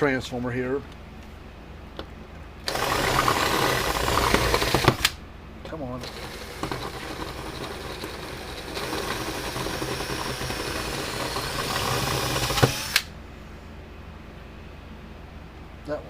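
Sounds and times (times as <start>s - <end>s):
electric drill drilling metal rivet: 2.7s - 5.2s, 6.0s - 13.1s.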